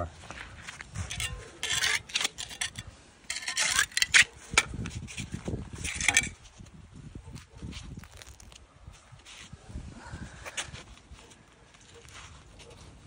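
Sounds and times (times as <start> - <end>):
scraping and rustling: 7.4 - 9.6.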